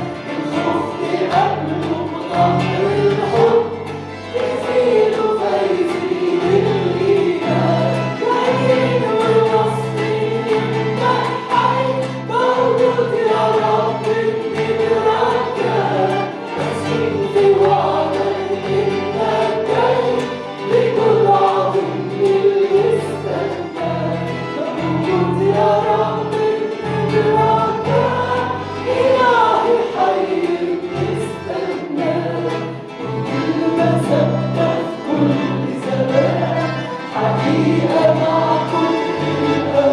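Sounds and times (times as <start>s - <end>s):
congregation singing a hymn: 0.0s - 39.9s
instrumental accompaniment: 0.0s - 39.9s.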